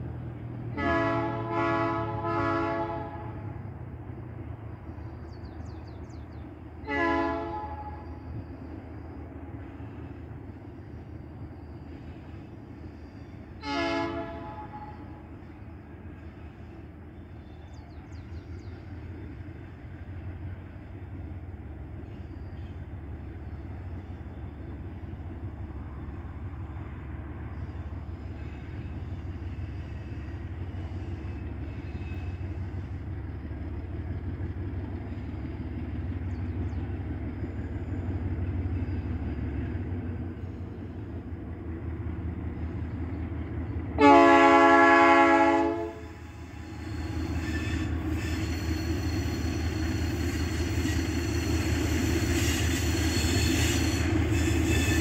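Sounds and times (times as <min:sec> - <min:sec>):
diesel locomotive engine rumble: 0:00.0 - 0:55.0
train horn blast: 0:00.6 - 0:03.7, 0:06.8 - 0:08.3, 0:13.5 - 0:15.5, 0:44.0 - 0:51.7, 0:52.3 - 0:55.0.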